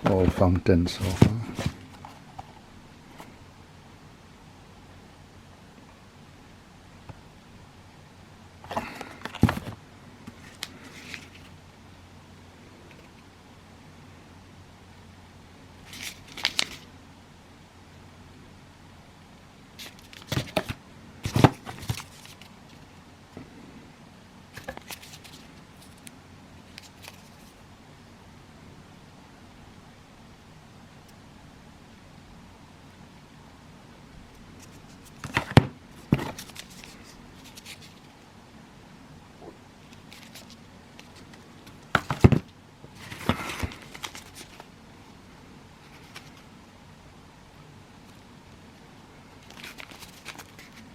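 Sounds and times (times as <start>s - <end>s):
packaging crinkling: 15.9s - 16.9s, 34.6s - 38.1s, 39.9s - 44.7s, 49.4s - 50.9s
cardboard packaging knocks and clatters: 41.9s - 43.9s.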